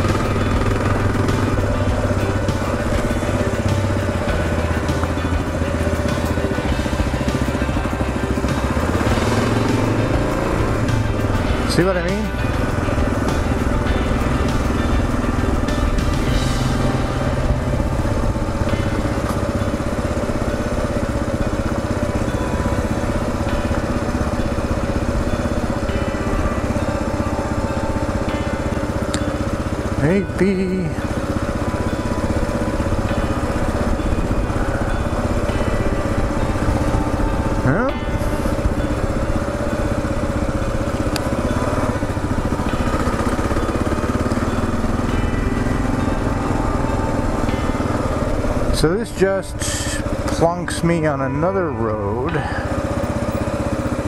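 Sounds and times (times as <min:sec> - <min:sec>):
motorcycle engine thumping: 0:00.0 - 0:30.2.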